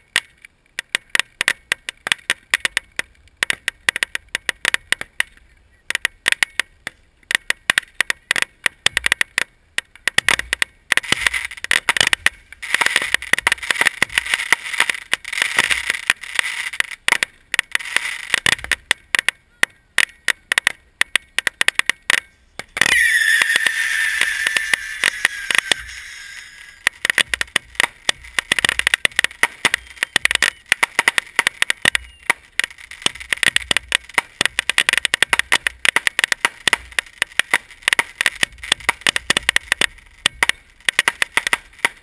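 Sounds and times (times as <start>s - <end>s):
fireworks crackling and popping: 0.0s - 42.0s
whistling firework: 22.3s - 32.5s
firework booms: 22.7s - 37.0s.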